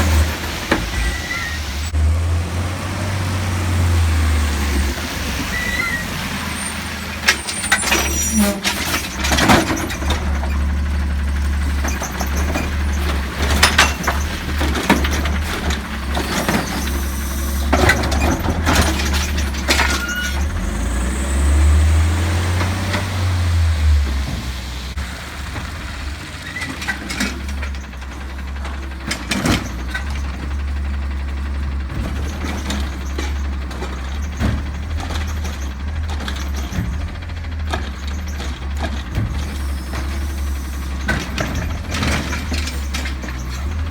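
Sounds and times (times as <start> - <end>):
garbage truck diesel engine: 0.0 - 43.9
loud clanks and bangs: 6.2 - 43.9.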